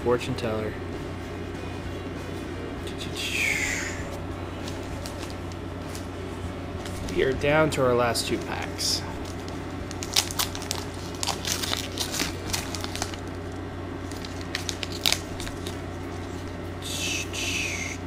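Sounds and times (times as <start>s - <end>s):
steady low hum: 0.0s - 18.0s
plastic wrapper tearing and crinkling: 9.2s - 16.6s.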